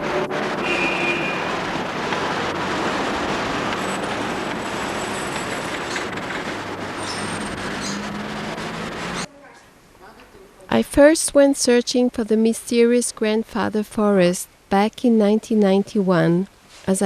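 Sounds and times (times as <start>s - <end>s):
road traffic noise: 0.0s - 9.3s.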